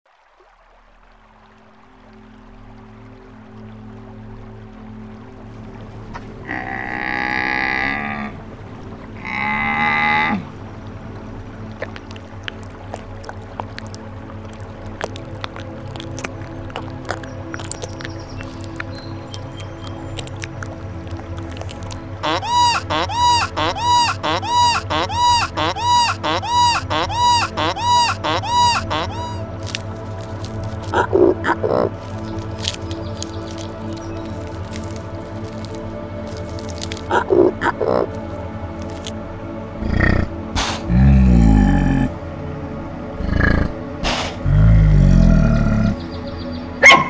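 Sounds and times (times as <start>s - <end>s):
soft music: 0.3s - 47.0s
long animal calls: 9.2s - 10.6s, 11.8s - 38.2s
animal honking call: 21.7s - 32.8s.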